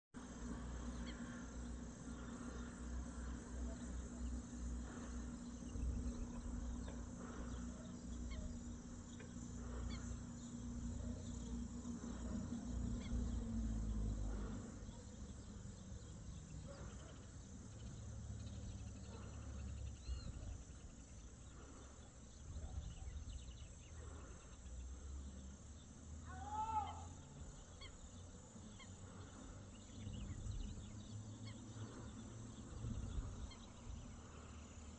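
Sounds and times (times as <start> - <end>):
steady low hum: 0.2 - 34.9
faint bird calls: 0.4 - 34.9
loud arching bird call: 26.3 - 27.2.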